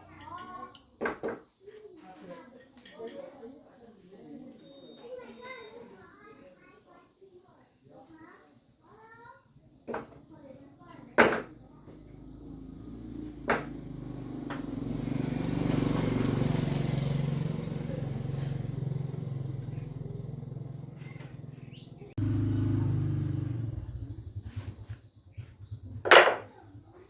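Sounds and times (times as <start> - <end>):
small engine running: 11.8 - 26.8.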